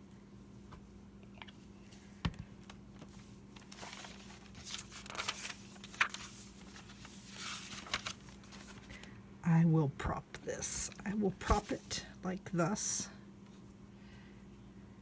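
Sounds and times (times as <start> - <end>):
faint steady hum: 0.0 - 15.0
paper rustling: 3.0 - 9.1, 11.4 - 11.9.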